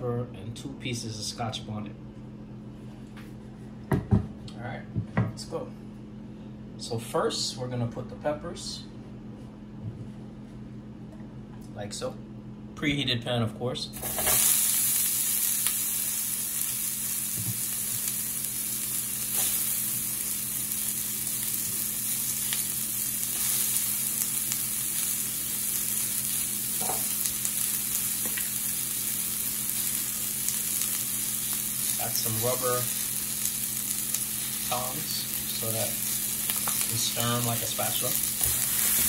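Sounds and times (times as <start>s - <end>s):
peppers sizzling in a frying pan: 14.0s - 39.0s.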